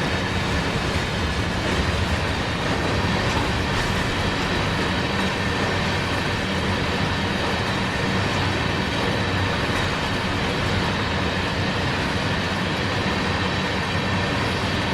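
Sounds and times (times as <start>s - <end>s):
freight train rolling past: 0.0s - 14.9s.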